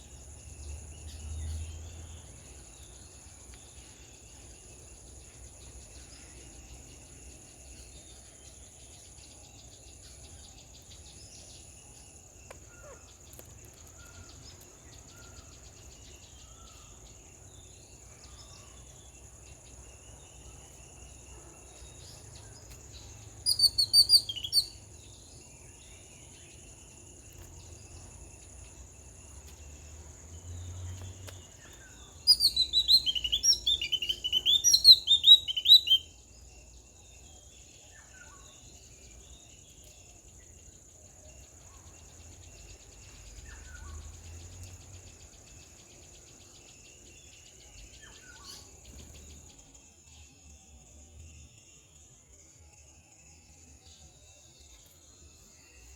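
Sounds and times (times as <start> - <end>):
high insect drone: 0.0 - 55.9
rapid high chirping calls: 23.4 - 24.8, 32.0 - 36.1.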